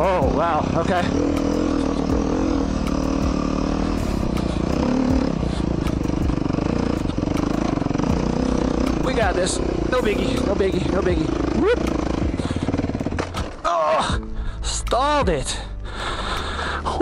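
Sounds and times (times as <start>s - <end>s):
motorcycle engine running: 0.0s - 16.7s
knocks and clatter: 13.0s - 13.6s.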